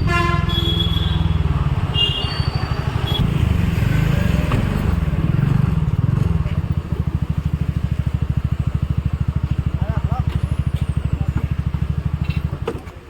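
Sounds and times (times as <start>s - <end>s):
vehicle engine pulsing: 0.0s - 13.0s.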